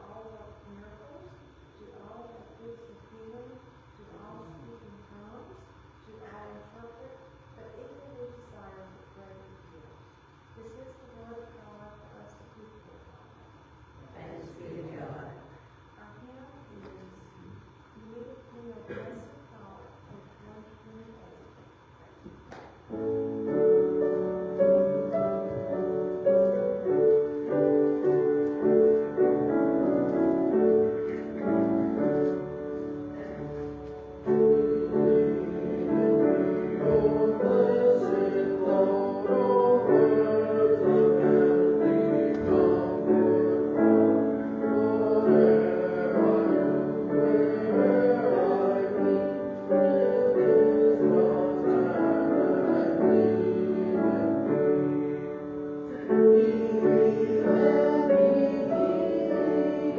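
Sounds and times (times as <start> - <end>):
slow piano piece: 22.4 - 59.9.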